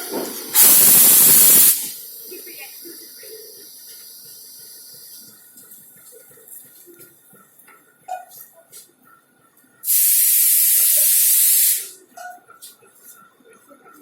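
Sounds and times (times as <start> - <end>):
air brake hiss: 0.6 - 2.2, 9.9 - 11.9.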